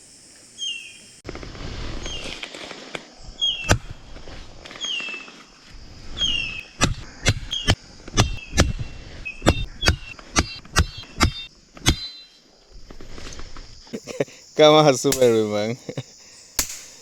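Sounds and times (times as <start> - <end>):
bird chirping: 0.5 - 1.2, 3.4 - 3.7, 6.2 - 12.5
sharp chopping blows: 6.3 - 12.1, 16.6 - 17.0.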